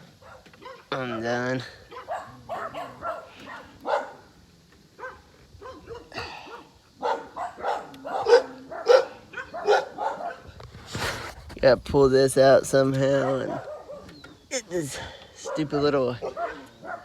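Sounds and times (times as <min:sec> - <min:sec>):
dog barking: 0:00.0 - 0:04.3, 0:05.0 - 0:10.5, 0:13.0 - 0:14.2, 0:15.4 - 0:17.0.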